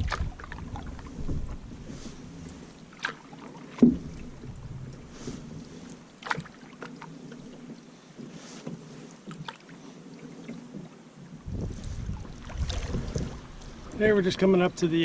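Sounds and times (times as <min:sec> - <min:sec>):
paddle knocking against hull: 0:00.0 - 0:01.8, 0:03.0 - 0:09.6, 0:10.7 - 0:14.5
wind buffeting microphone: 0:00.0 - 0:02.5, 0:04.0 - 0:05.5, 0:11.4 - 0:15.0
paddle strokes in water: 0:00.0 - 0:15.0.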